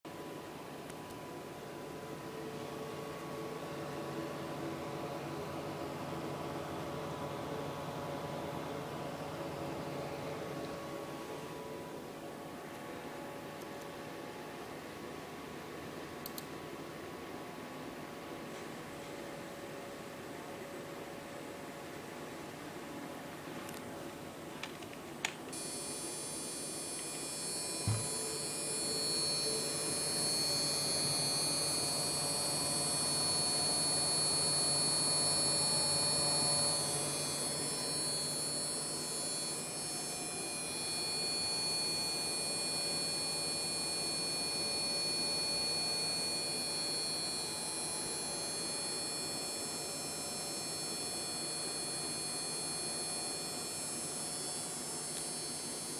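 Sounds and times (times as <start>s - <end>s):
high-pitched electrical buzz: 25.5s - 55.9s.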